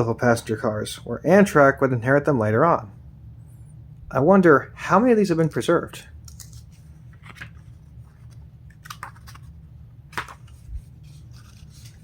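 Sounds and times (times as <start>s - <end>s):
steady low hum: 0.0s - 12.0s
paper pages rustling: 6.3s - 12.0s.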